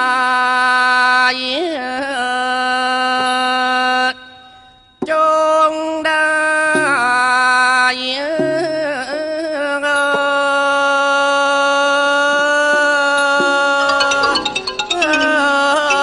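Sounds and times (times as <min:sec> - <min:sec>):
wavering held melodic notes: 0:12.8 - 0:16.0.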